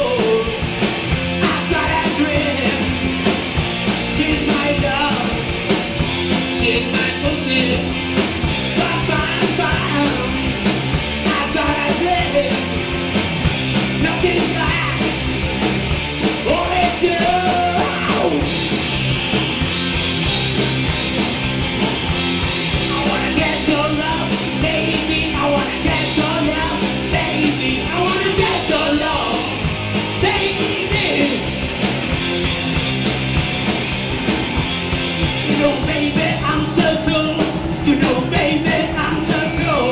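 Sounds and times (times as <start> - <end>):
punk rock band playing live: 0.0 - 39.9
shouted singing: 22.8 - 29.6, 30.2 - 31.5, 35.5 - 39.9.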